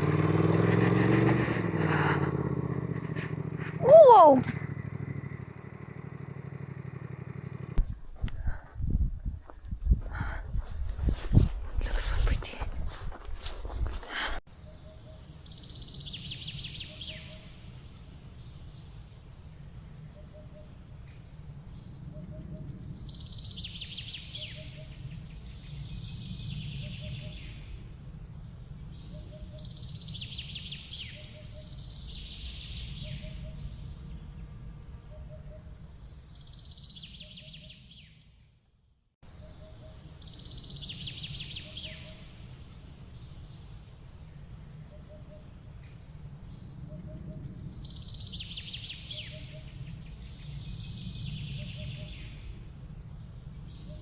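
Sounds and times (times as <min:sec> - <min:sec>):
low outdoor rumble: 0:00.0 - 0:14.4, 0:17.5 - 0:36.4.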